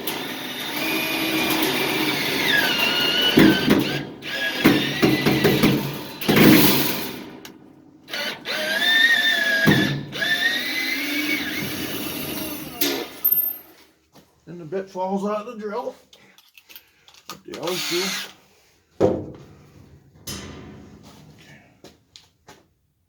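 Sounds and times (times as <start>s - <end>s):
cordless drill motor whining: 0.0s - 5.2s, 8.1s - 12.8s, 17.6s - 18.4s
screw grinding: 0.0s - 7.5s, 8.1s - 13.3s, 16.4s - 18.4s.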